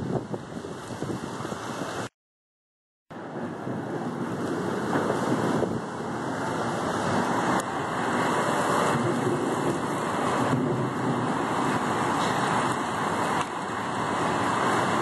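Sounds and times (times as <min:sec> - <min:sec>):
wind buffeting microphone: 0:00.0 - 0:02.1, 0:03.2 - 0:15.0
heavy rain pouring: 0:03.2 - 0:15.0.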